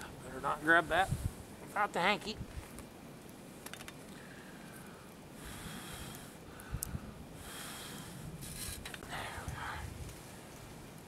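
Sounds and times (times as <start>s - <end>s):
man breathing heavily: 4.2s - 10.0s.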